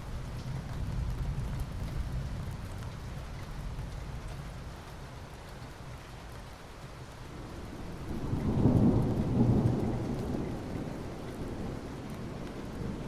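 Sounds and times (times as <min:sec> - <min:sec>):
rain falling on asphalt: 0:00.0 - 0:13.0
distant thunder rumble: 0:07.3 - 0:13.0.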